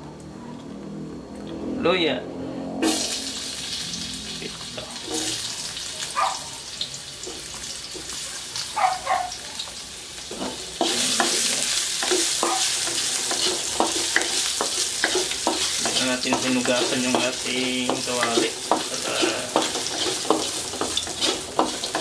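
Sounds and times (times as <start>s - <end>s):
ginger sizzling in oil: 2.8s - 22.0s
wooden spatula scraping pan: 10.3s - 22.0s.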